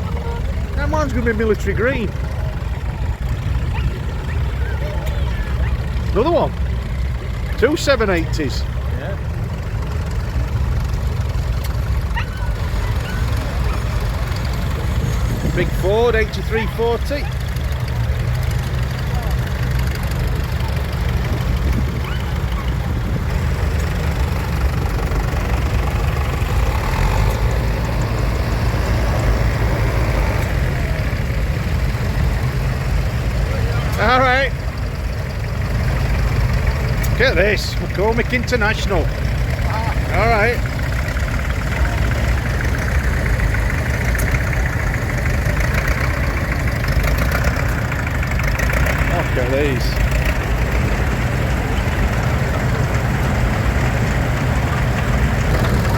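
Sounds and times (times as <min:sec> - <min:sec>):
diesel tractor engines idling: 0:00.0 - 0:55.9.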